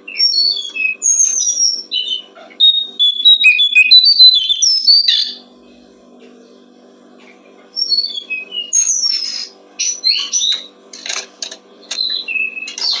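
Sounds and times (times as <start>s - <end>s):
songbird chirping and whistling: 2.6s - 5.4s.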